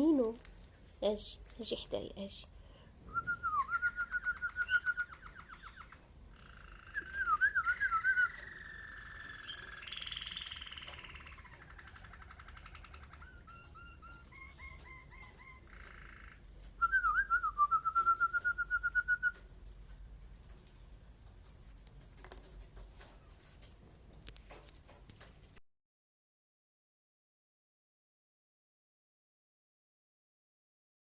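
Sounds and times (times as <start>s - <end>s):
person whistling trills: 3.1s - 5.2s, 7.0s - 8.4s, 16.8s - 19.3s
canary chirping and warbling: 3.1s - 17.1s.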